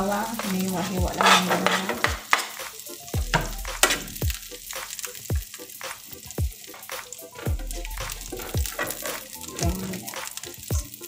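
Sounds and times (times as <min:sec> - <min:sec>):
background music with low thump: 0:00.0 - 0:11.0
garlic sizzling in butter: 0:00.0 - 0:11.0
utensil scraping a pan: 0:00.1 - 0:02.6, 0:06.7 - 0:10.5.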